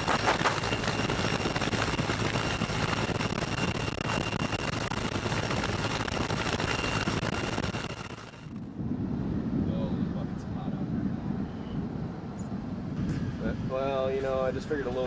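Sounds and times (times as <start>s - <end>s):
helicopter rotor and engine: 0.0s - 9.4s, 11.5s - 15.0s
high turbine whine: 0.0s - 15.0s.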